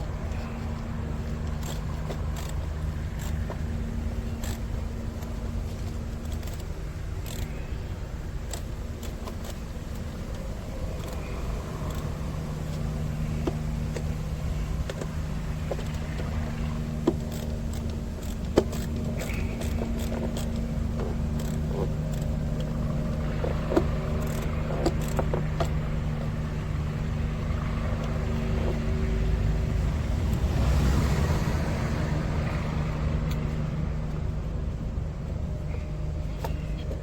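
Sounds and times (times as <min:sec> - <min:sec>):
steady low hum: 0:00.0 - 0:37.0
metal clicks of hand tools: 0:04.4 - 0:07.6, 0:17.0 - 0:22.8.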